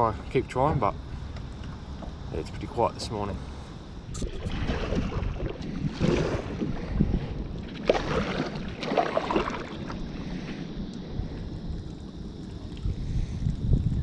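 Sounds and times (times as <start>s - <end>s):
wind buffeting microphone: 0.0s - 14.0s
water splashing around a kayak: 4.2s - 10.7s.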